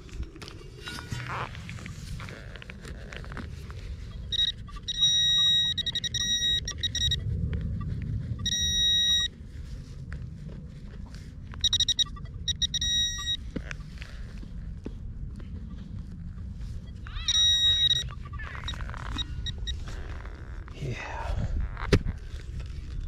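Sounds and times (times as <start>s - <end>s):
pulsing electronic detector tone: 4.0s - 9.3s, 11.6s - 13.8s, 16.8s - 19.9s.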